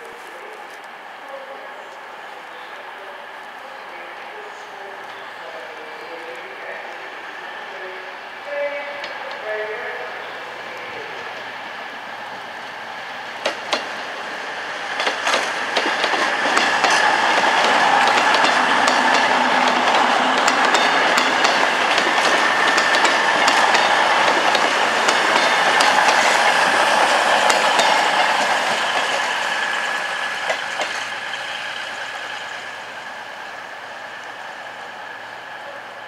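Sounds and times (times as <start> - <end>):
train engine and traction whine: 0.0 - 36.0
wheels clicking over rail joints: 10.2 - 32.8.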